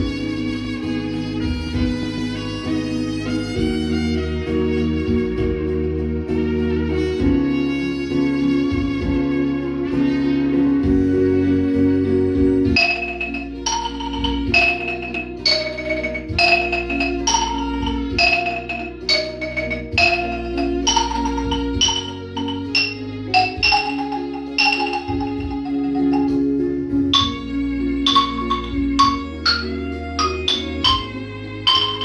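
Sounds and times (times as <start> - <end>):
low sustained accompaniment: 12.8 - 32.0
xylophone melody: 12.8 - 32.0.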